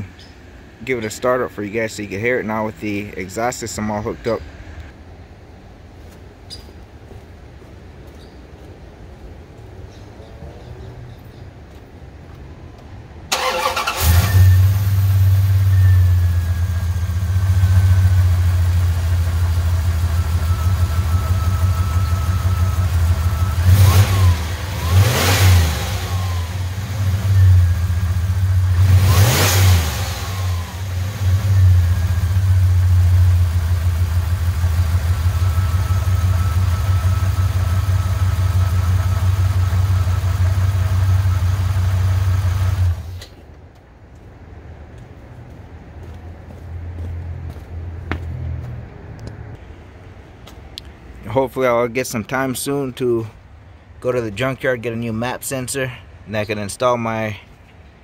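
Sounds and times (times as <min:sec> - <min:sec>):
faint turbo whine: 0:12.8 - 0:43.6
engine idling and revving: 0:13.3 - 0:43.3.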